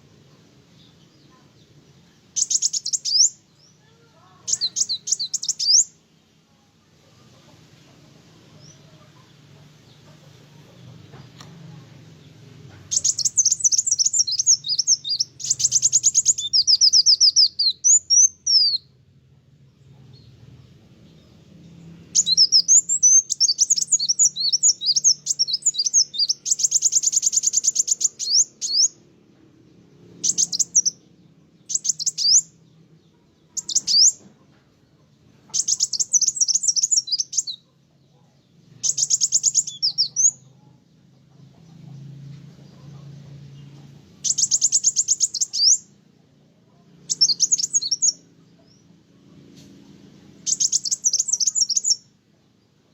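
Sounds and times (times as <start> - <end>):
sunbird singing trills: 0.0 - 6.0, 12.1 - 19.0, 20.2 - 29.1, 29.8 - 34.2, 35.5 - 37.7, 38.7 - 40.7, 42.1 - 46.0, 47.0 - 48.9, 50.1 - 52.1.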